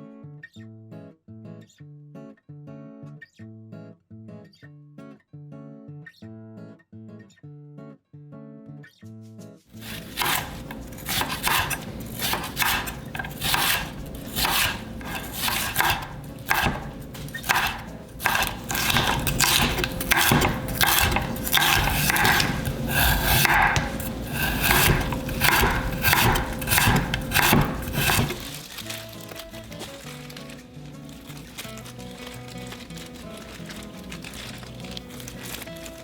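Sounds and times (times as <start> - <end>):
knife scraping and rubbing: 9.7 - 36.0
knife cutting on wooden board: 9.8 - 29.1.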